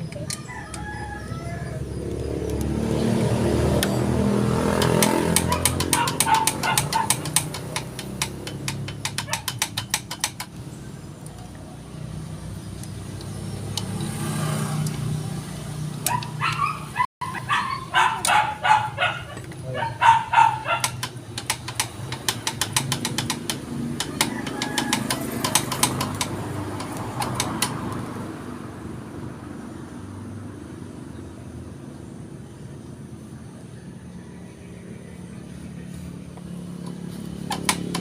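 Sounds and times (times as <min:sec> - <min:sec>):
dog barking: 0:05.4 - 0:07.2, 0:16.1 - 0:21.0
rapid sharp clicks: 0:20.8 - 0:27.8.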